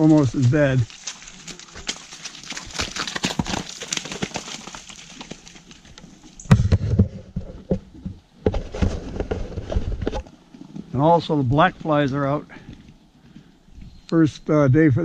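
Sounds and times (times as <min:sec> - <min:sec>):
horse hooves on muddy trail: 0:00.0 - 0:15.0
loud low thud: 0:06.5 - 0:07.2.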